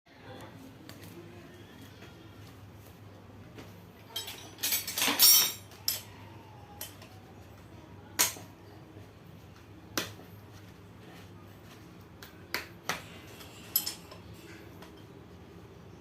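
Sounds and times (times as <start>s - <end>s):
metal tools clinking and clattering: 4.1s - 6.1s, 13.3s - 15.1s.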